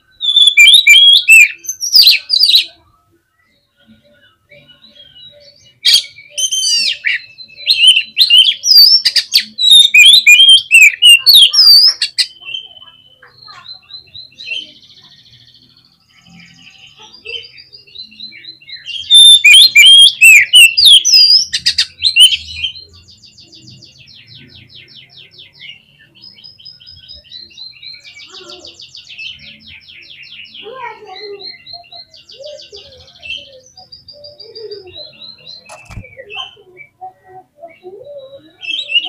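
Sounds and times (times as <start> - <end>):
bird whistled phrases: 0.2 - 2.7, 5.8 - 14.8, 18.8 - 22.8, 30.5 - 39.0
bird trilling and rattling: 35.7 - 36.1.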